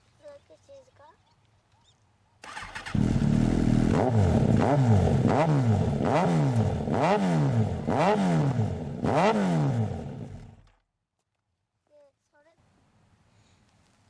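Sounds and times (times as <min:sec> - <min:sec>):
motorcycle engine revving: 0:02.4 - 0:10.8.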